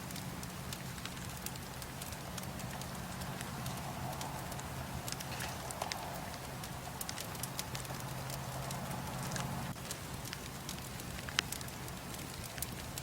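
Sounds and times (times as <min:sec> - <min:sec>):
steady low hum: 0:00.0 - 0:09.9
wood bonfire crackling: 0:00.0 - 0:13.0.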